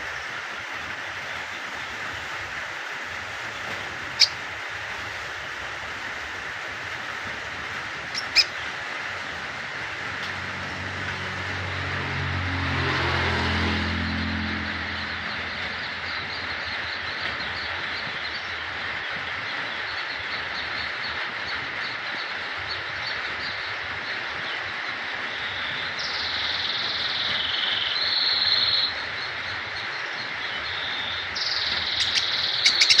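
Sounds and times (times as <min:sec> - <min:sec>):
bird chips and trills: 0:03.4 - 0:04.6, 0:08.0 - 0:09.4, 0:25.3 - 0:33.0.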